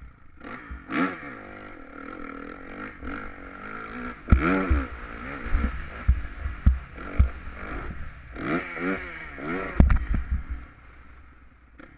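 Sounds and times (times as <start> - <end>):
motocross bike engine revving: 0.0 - 11.9
sharp low thumps: 4.2 - 8.2.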